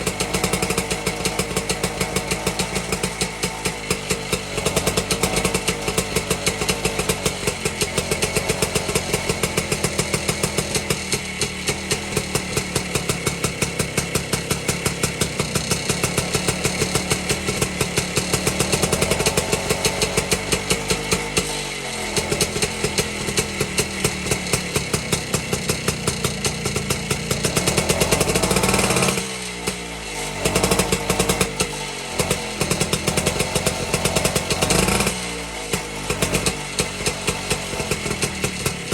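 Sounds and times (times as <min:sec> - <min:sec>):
two-stroke engine revving: 0:00.0 - 0:38.9.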